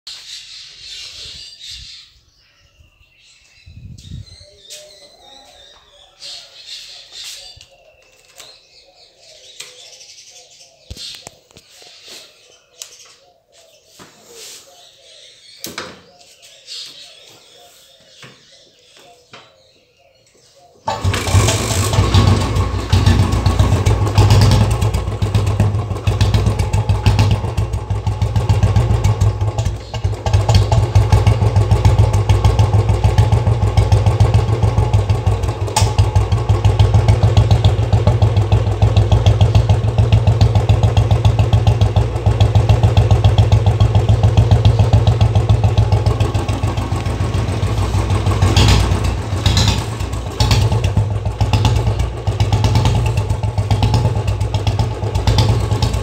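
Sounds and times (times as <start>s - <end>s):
motorcycle exhaust thumping: 21.0s - 56.0s.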